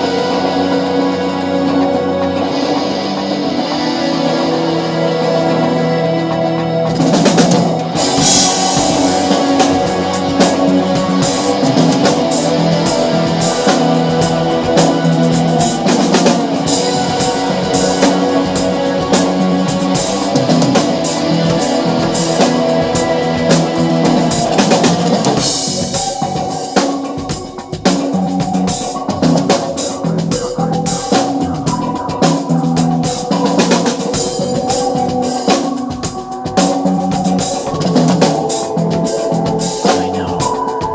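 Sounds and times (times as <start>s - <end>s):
guitar-driven rock song: 0.0s - 40.9s
rock drumming: 0.0s - 40.9s.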